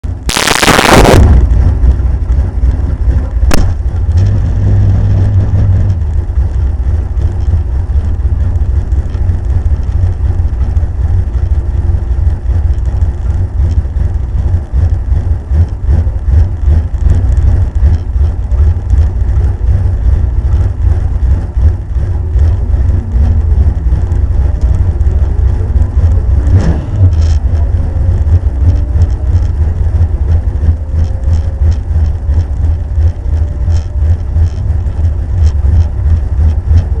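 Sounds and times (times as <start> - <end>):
car engine idling roughly: 0.0 - 37.0
loud burst of noise: 0.2 - 2.1
sharp clicks: 0.3 - 1.4.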